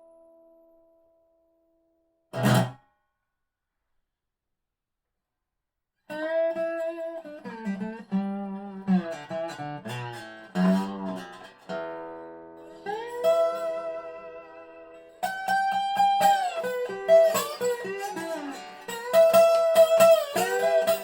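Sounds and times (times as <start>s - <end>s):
slide guitar playing: 6.1s - 21.0s.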